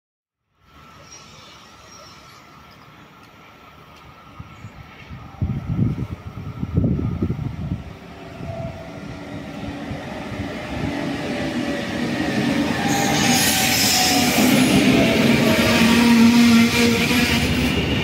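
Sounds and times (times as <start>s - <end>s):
electric train rumbling and whining: 0.5s - 18.0s
wind buffeting microphone: 4.4s - 12.9s.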